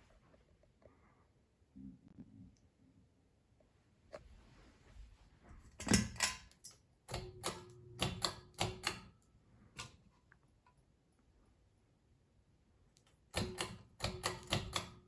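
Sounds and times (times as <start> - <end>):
mechanical clicks and knocks: 5.8 - 9.2, 13.3 - 15.0.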